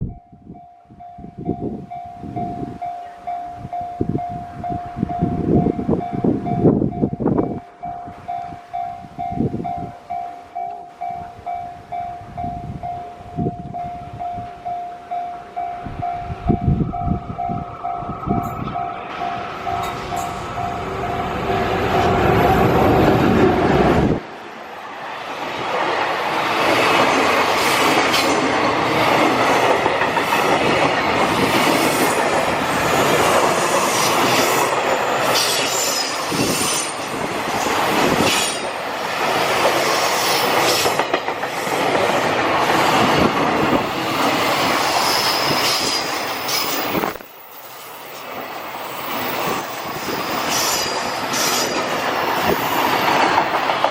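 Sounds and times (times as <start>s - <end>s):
train wheels clattering: 25.7s - 53.9s
wheel squeal: 49.1s - 51.9s.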